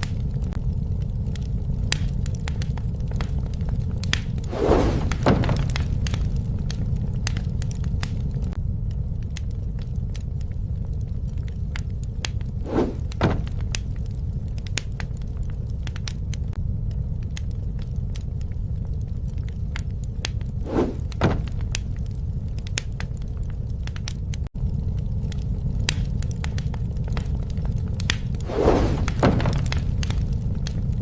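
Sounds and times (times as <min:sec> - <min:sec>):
bonfire crackling and popping: 0:00.0 - 0:31.0
short whooshes: 0:04.5 - 0:05.4, 0:12.6 - 0:13.1, 0:20.6 - 0:21.1, 0:28.4 - 0:29.4.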